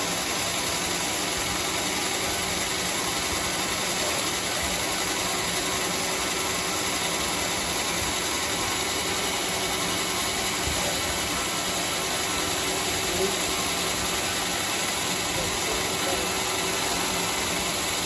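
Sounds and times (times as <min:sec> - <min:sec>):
bandsaw sawmill running: 0:00.0 - 0:18.0.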